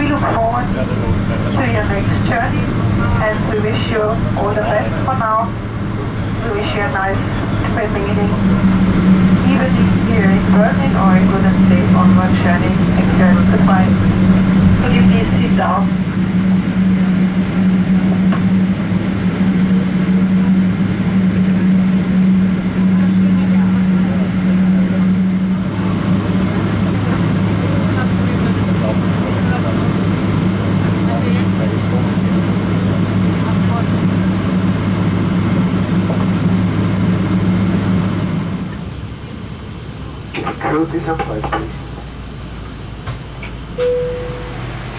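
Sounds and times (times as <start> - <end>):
aircraft cabin hum: 0.0 - 44.9.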